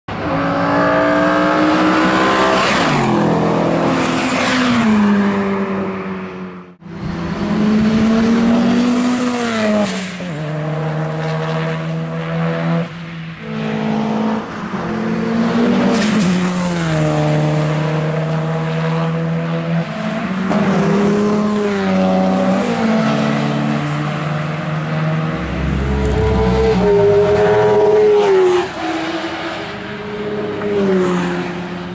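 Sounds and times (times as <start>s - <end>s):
race car engine passing: 20.6s - 31.9s.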